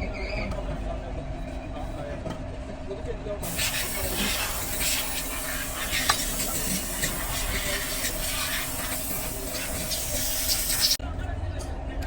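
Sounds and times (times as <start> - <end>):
hissing spray: 3.4 - 11.0.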